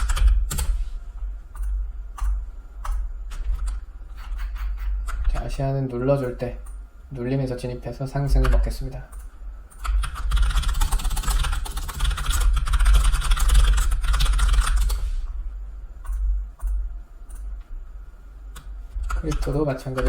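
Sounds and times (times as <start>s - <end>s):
rapid typing on keyboard: 0.0s - 0.8s, 9.8s - 15.0s, 18.6s - 20.0s
steady low hum: 0.0s - 20.0s.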